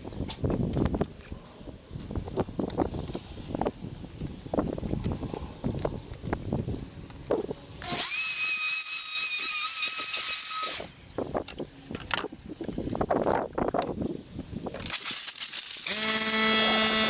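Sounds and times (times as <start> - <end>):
wood router high-pitched whine: 7.8 - 11.2, 15.8 - 17.0.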